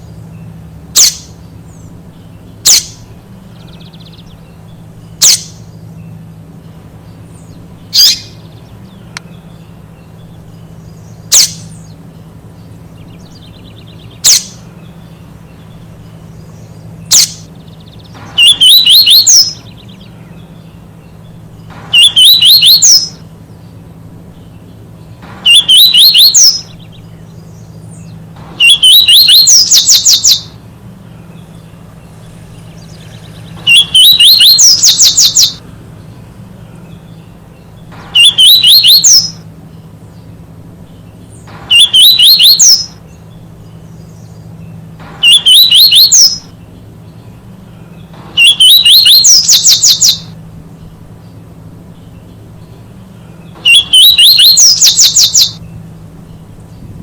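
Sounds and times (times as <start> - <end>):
bird singing high twittering phrases: 0.0 - 57.0.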